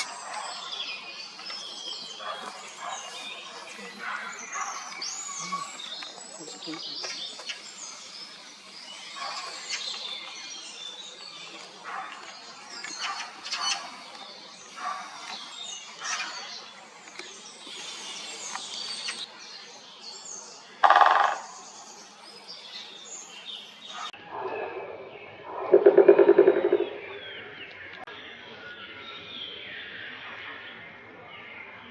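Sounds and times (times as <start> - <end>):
small birds chirping: 0.0 - 24.2.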